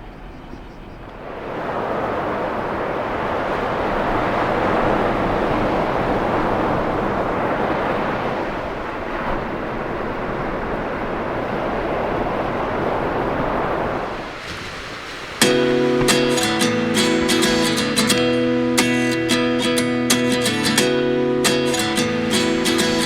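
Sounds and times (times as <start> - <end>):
wind on microphone: 0.4 - 18.4
ocean surf: 1.0 - 23.0.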